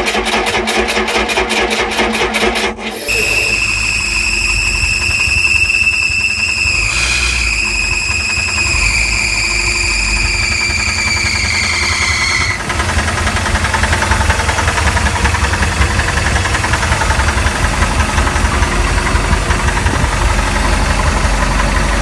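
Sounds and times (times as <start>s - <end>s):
boat engine knocking: 0.0s - 22.0s
high-pitched bearing squeal: 2.8s - 12.7s.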